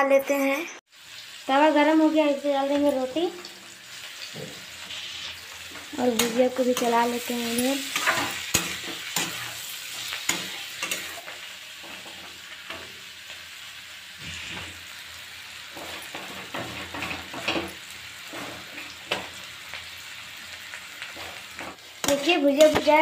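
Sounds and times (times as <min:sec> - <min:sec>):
vegetables sizzling in hot oil: 0:00.9 - 0:23.0
spatula scraping a metal pan: 0:04.4 - 0:12.9, 0:14.2 - 0:14.8, 0:15.7 - 0:19.3.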